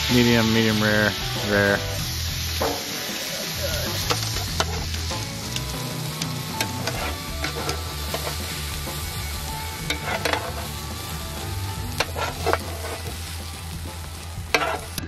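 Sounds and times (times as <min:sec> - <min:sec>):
steak sizzling on griddle: 0:00.0 - 0:15.0
metal tongs clicking: 0:09.9 - 0:10.6.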